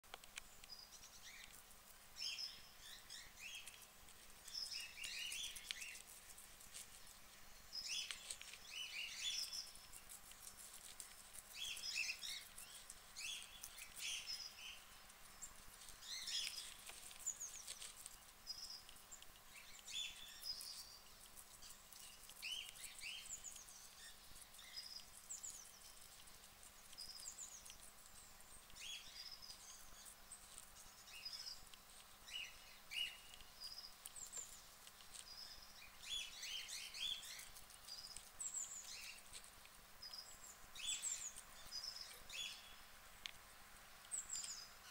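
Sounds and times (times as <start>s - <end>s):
guinea pigs chewing lettuce: 0.0s - 44.9s.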